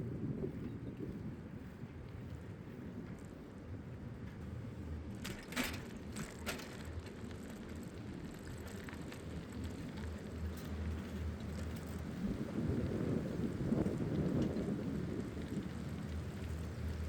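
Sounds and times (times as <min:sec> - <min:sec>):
wind on microphone: 0:00.0 - 0:03.4, 0:12.0 - 0:17.0
bicycle rolling: 0:00.0 - 0:17.0
bicycle mechanical rattles: 0:05.1 - 0:17.0.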